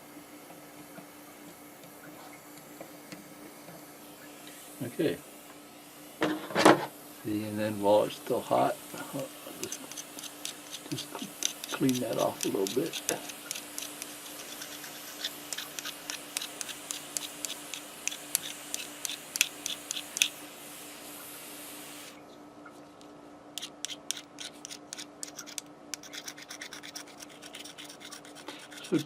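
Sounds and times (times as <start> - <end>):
steady hiss: 1.8 - 22.2
scratchy clicks of tip cleaning: 9.6 - 20.4, 23.6 - 29.0.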